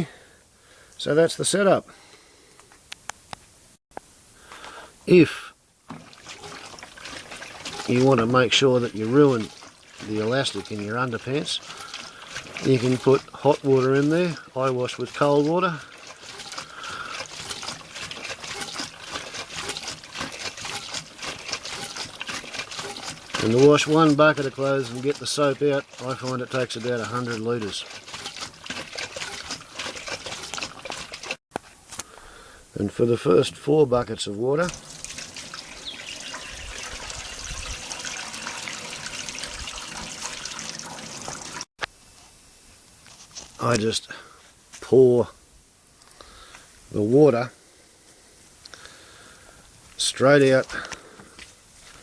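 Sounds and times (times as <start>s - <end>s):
small water drips: 5.9s - 31.4s, 34.6s - 41.7s
water trickling and splashing: 5.9s - 31.4s, 34.6s - 41.7s.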